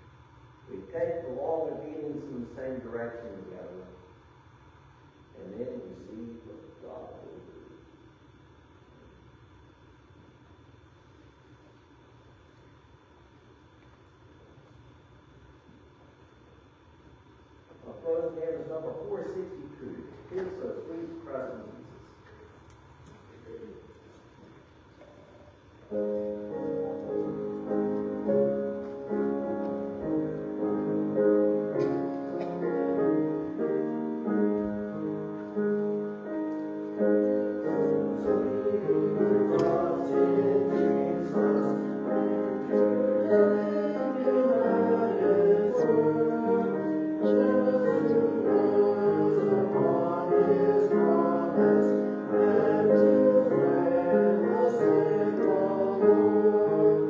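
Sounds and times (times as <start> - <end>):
piano playing hymn chords: 25.8 - 57.0
congregation singing: 25.9 - 57.0.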